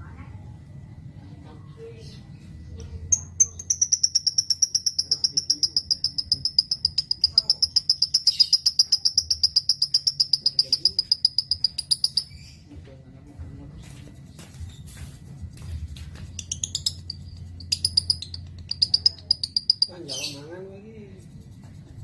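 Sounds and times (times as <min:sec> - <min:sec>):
bird trilling high chirps: 0:03.1 - 0:12.6, 0:16.4 - 0:20.5.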